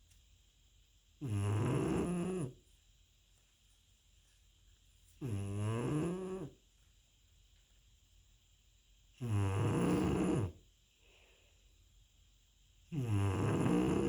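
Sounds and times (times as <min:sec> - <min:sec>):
dog snoring: 0:01.2 - 0:02.6, 0:05.2 - 0:06.6, 0:09.2 - 0:10.6, 0:12.9 - 0:14.0.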